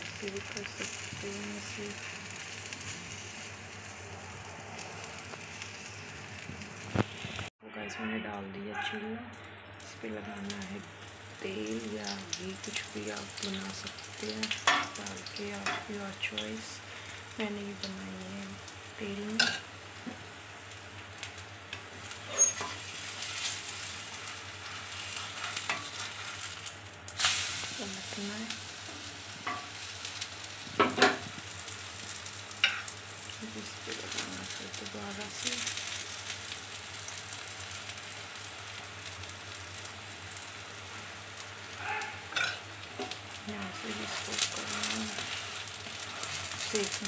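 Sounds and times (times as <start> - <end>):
batter sizzling on a griddle: 0.0 - 7.5, 9.4 - 47.0
crackles and pops: 0.0 - 7.5, 17.4 - 47.0
wooden spatula scraping: 22.2 - 26.5.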